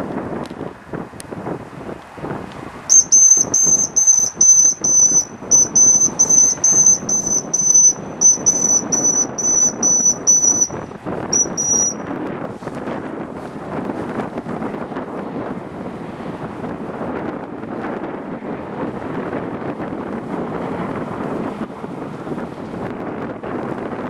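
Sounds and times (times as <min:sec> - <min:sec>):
wind noise on microphone: 0:00.0 - 0:24.0
rapid high-pitched beeping: 0:02.9 - 0:12.0.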